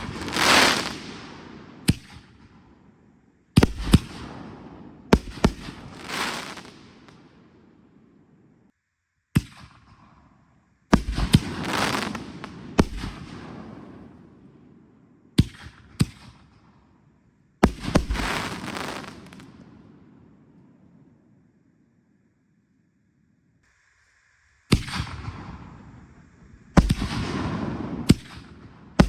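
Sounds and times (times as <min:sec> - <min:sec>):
fireworks bangs: 0:00.0 - 0:02.7, 0:03.6 - 0:07.8, 0:10.9 - 0:14.8, 0:17.6 - 0:20.3, 0:24.7 - 0:29.0
fireworks crackling tail: 0:00.0 - 0:08.7, 0:09.4 - 0:16.8, 0:17.6 - 0:21.4, 0:23.6 - 0:29.0.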